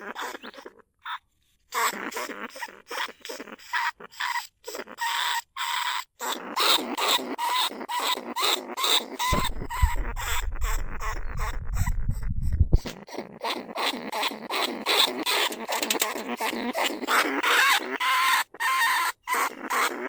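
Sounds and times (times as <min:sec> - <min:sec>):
rats squeaking and chattering: 0:00.0 - 0:20.0
low rumble: 0:09.3 - 0:12.9.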